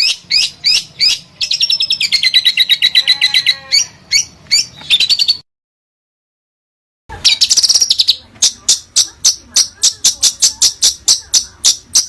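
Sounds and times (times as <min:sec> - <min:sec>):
sharp bird chirps: 0:00.0 - 0:03.0
songbird trilling: 0:00.0 - 0:05.4, 0:07.2 - 0:12.0.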